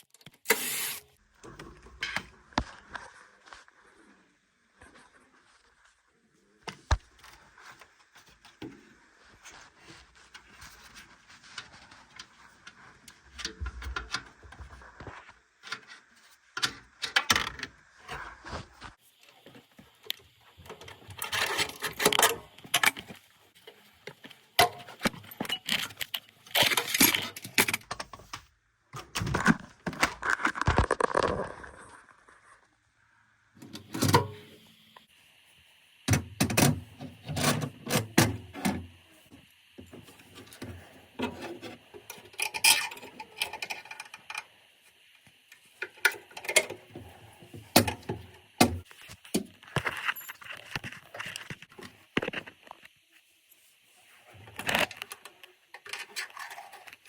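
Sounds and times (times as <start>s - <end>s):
metal tools clinking and scraping: 42.3s - 44.4s.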